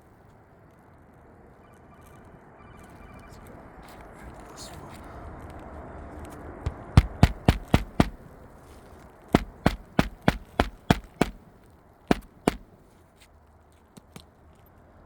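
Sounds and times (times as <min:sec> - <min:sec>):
hammer driving roofing nails: 0:06.7 - 0:08.2, 0:09.4 - 0:11.5, 0:12.1 - 0:12.8.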